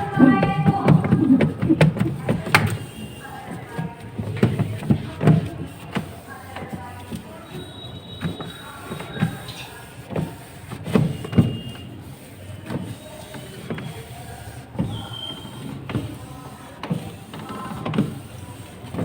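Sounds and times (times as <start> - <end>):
scouring pad rubbing plastic: 0.2 - 2.2, 12.1 - 19.0.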